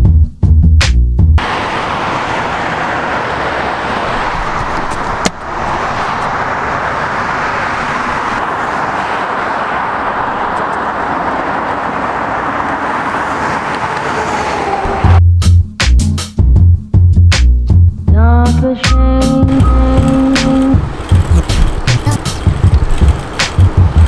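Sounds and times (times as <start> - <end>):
music with heavy bass beat: 0.0 - 1.4, 15.2 - 24.0
road traffic noise: 1.4 - 15.2, 17.8 - 24.0.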